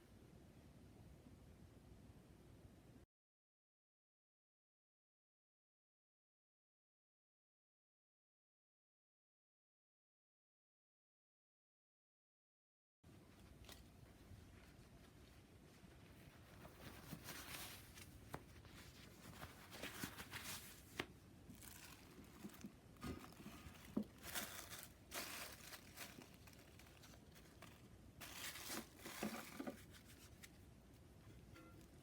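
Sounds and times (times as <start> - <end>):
crinkling and rustling: 13.1 - 32.0.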